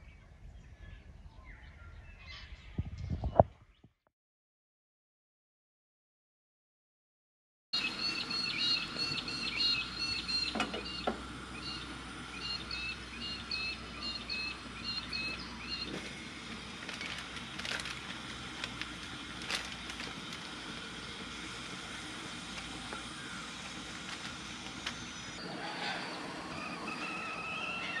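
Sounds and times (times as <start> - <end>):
birds chirping: 7.8 - 28.0.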